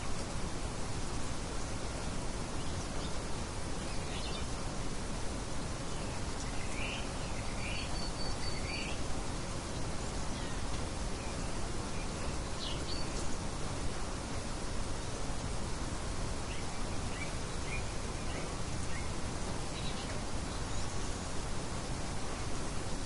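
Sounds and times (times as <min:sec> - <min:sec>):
light wind hissing: 0:00.0 - 0:23.0
birds chirping: 0:01.7 - 0:04.6, 0:05.9 - 0:13.6, 0:16.3 - 0:22.7.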